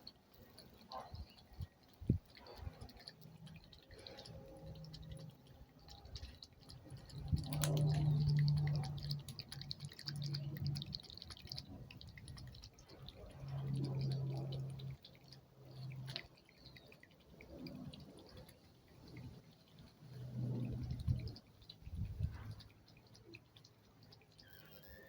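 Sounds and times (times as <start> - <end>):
cat lapping water: 0.0 - 25.0
low hum: 1.0 - 16.8, 19.0 - 22.8.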